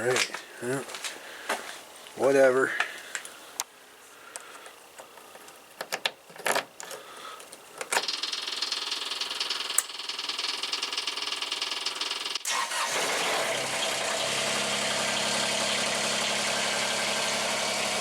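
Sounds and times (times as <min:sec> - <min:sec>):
tractor starter cranking engine: 0:08.0 - 0:18.0.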